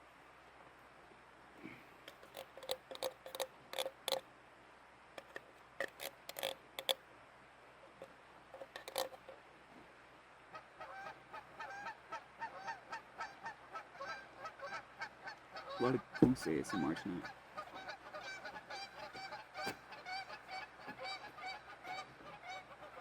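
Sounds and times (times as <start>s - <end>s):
geese honking: 10.5s - 23.0s.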